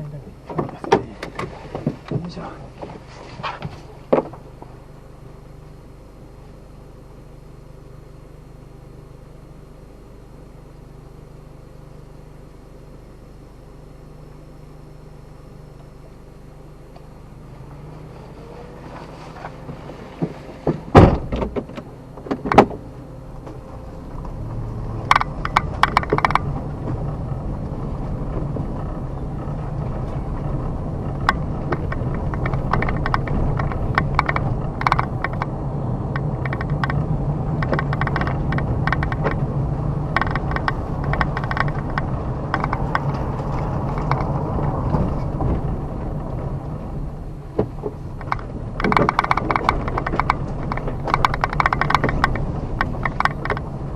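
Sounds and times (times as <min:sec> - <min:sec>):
car engine hum driving slowly: 0:00.0 - 0:53.9
clicks and crackles: 0:25.0 - 0:26.5, 0:31.1 - 0:35.5, 0:36.1 - 0:39.4, 0:40.1 - 0:45.3, 0:47.8 - 0:53.7
sharp knocks: 0:31.2 - 0:35.5, 0:36.2 - 0:37.0, 0:40.2 - 0:43.1, 0:47.6 - 0:53.7.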